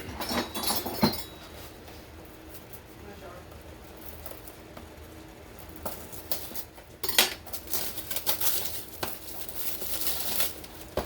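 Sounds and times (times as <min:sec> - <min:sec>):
crockery and utensils clinking: 0:00.0 - 0:01.6.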